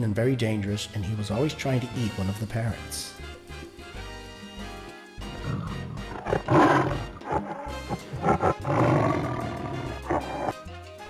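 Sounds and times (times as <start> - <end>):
background music: 0.0 - 11.0
big cat roaring: 5.3 - 10.6.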